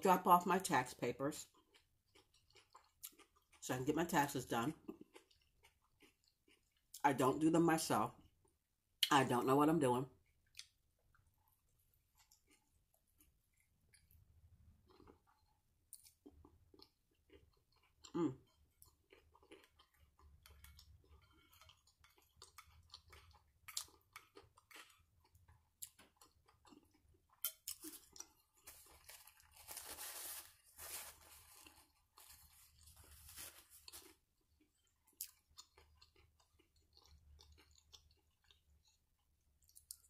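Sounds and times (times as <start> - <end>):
chewing and mouth sounds: 1.4 - 3.6, 4.6 - 7.0, 10.2 - 29.6, 33.8 - 40.0
paper napkin rustling: 29.1 - 34.0.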